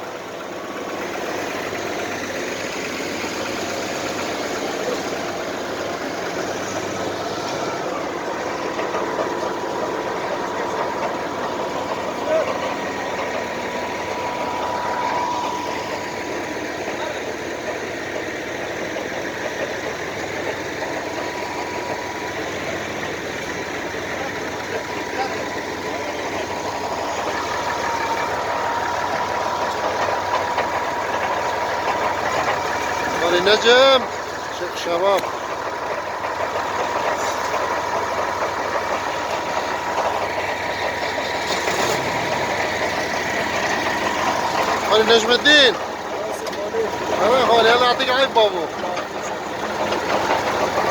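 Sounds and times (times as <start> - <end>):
engine running steadily: 0.0 - 50.9
thin steady whine: 2.3 - 40.5.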